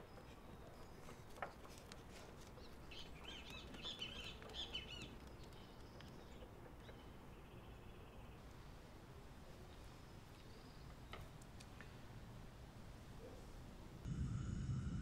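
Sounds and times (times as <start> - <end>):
bird chirping: 2.6 - 8.4.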